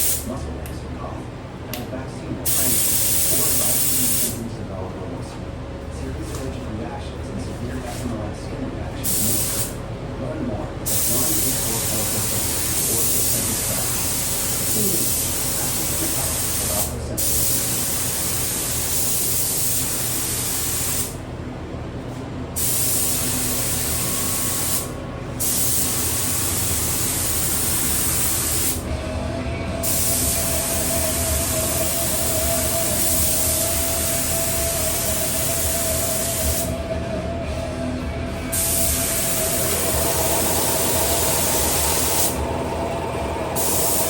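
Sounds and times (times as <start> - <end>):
spray gun hissing: 22.6 - 28.8, 29.8 - 36.7, 38.5 - 42.8, 43.5 - 44.0.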